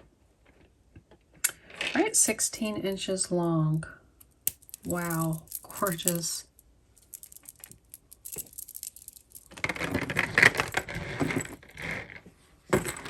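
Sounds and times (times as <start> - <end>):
jewelry beads clicking and rattling: 4.2 - 11.6.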